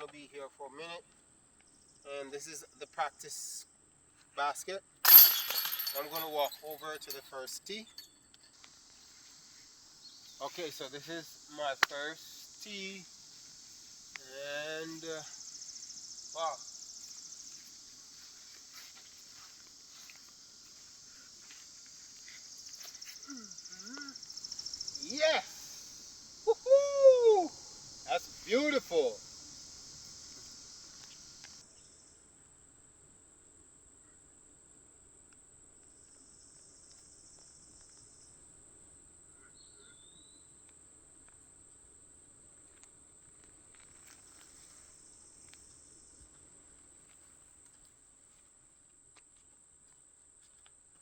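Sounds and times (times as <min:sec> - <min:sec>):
insects chirring: 0:00.1 - 0:03.8, 0:04.8 - 0:48.4
high insect buzz: 0:08.6 - 0:32.1
faint clicks and scuffs: 0:17.1 - 0:24.1.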